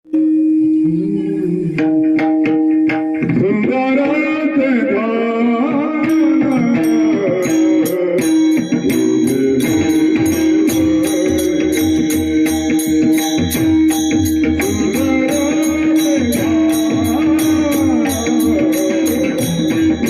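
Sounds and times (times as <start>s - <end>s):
man singing melismatic phrases: 3.4s - 13.2s, 14.6s - 20.0s
hand cymbals: 5.9s - 20.0s
steady drone: 7.5s - 20.0s.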